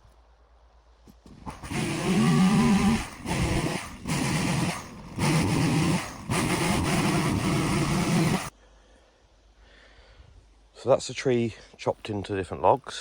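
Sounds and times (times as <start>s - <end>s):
chainsaw cutting wood: 1.1s - 8.5s.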